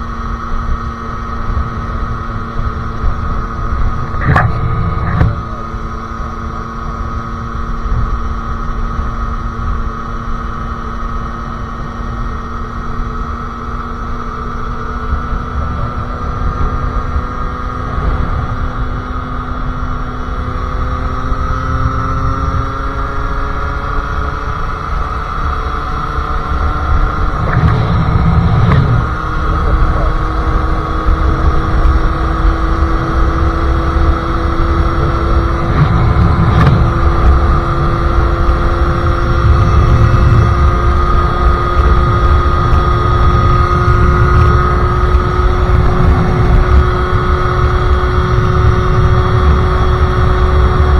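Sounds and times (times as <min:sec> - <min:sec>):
two-stroke motorcycle engine: 0:00.0 - 0:50.9
wind buffeting microphone: 0:26.4 - 0:50.9.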